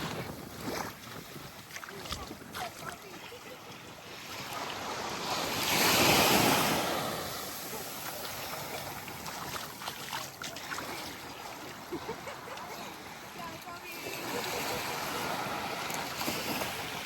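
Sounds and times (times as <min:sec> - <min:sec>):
fizzing and lapping water: 0:00.0 - 0:17.0
wave breaking on sand: 0:04.6 - 0:11.2.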